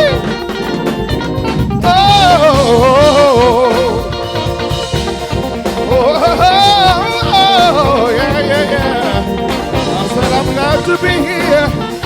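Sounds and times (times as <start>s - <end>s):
band playing gospel groove: 0.0s - 12.0s
drum kit: 0.0s - 12.0s
person singing wordless run: 1.8s - 4.2s, 5.9s - 12.0s.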